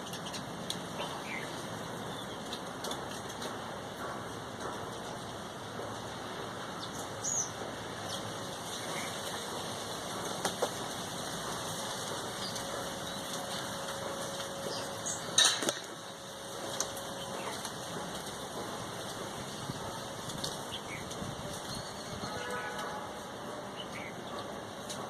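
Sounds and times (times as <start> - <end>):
birds chirping: 0.0 - 2.6, 6.6 - 9.7, 12.2 - 17.8, 19.6 - 24.8.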